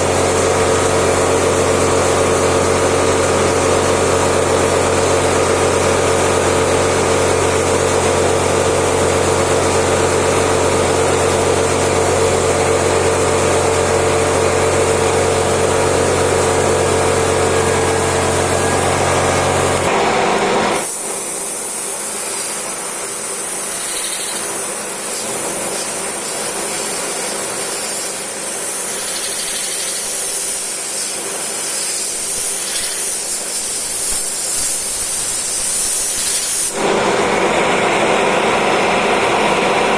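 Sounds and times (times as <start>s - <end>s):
lathe motor hum: 0.0s - 39.9s
high hiss: 20.8s - 36.8s.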